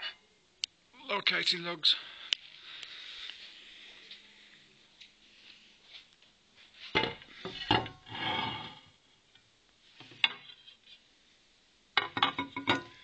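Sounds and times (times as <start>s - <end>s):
glass scrape: 6.9s - 8.9s.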